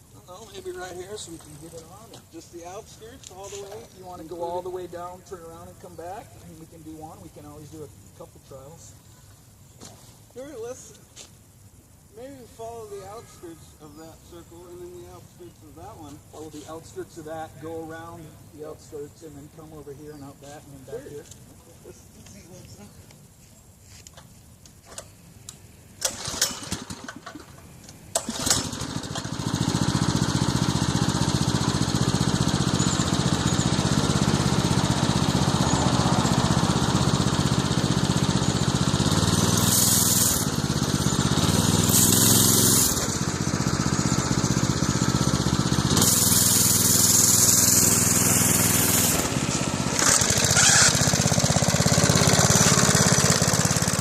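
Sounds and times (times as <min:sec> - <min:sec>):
small engine sputtering and running: 0:26.0 - 0:27.5, 0:28.2 - 0:54.0
bursts of hiss: 0:39.4 - 0:40.5, 0:41.6 - 0:43.1, 0:45.9 - 0:49.8.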